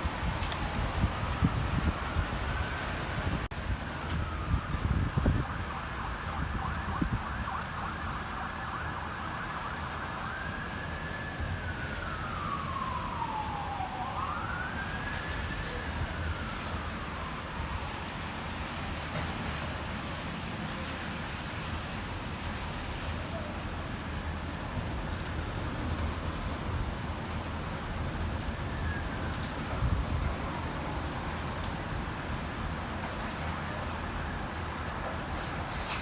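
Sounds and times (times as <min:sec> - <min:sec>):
wind buffeting microphone: 0:00.0 - 0:07.6, 0:23.4 - 0:36.0
emergency siren wailing: 0:00.0 - 0:19.6, 0:22.9 - 0:36.0.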